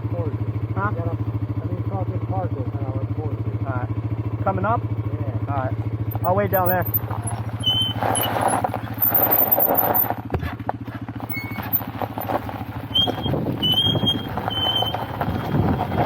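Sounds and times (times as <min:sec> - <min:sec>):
motorcycle engine idling: 0:00.0 - 0:16.0
short high squeaks: 0:06.1 - 0:10.2, 0:11.2 - 0:16.0
crunching: 0:06.1 - 0:10.3, 0:11.2 - 0:16.0.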